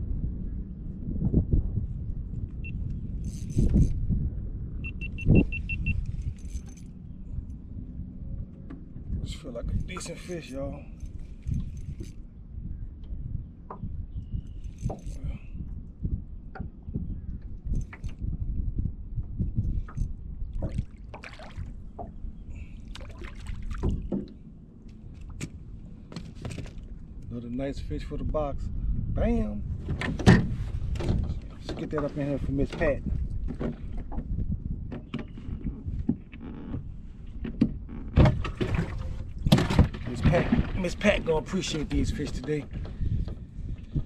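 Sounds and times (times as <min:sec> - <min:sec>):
wind buffeting microphone: 0:00.0 - 0:44.0
knocks and clicks in boat: 0:02.4 - 0:04.0, 0:08.3 - 0:10.4, 0:11.0 - 0:12.2, 0:13.0 - 0:15.8, 0:16.4 - 0:18.5, 0:19.2 - 0:22.2, 0:22.9 - 0:27.3, 0:29.8 - 0:44.0
light water splashes: 0:20.5 - 0:25.5.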